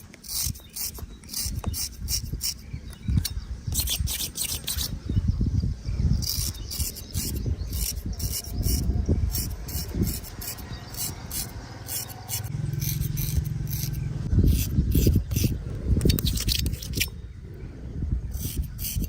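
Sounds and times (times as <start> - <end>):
razor scraping stubble: 0.0 - 5.2, 6.2 - 17.2, 18.3 - 19.0.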